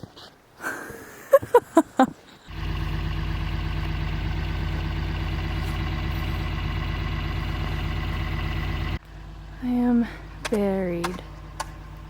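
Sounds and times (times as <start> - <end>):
engine idling: 2.5 - 12.0.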